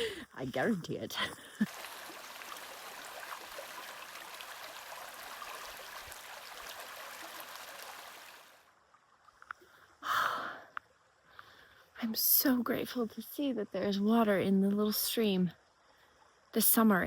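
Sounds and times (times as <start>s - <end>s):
stream trickling: 0.5s - 10.0s.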